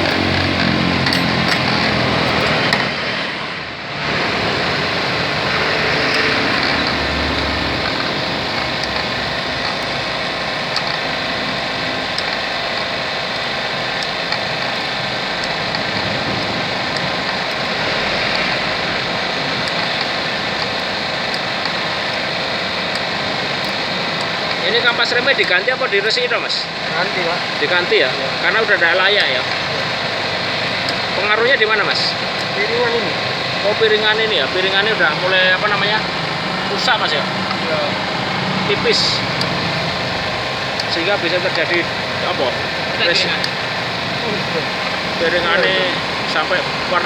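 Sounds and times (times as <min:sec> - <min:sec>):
traffic noise: 0:00.0 - 0:21.4, 0:32.5 - 0:47.0
vehicle engine: 0:00.0 - 0:25.0, 0:29.1 - 0:47.0.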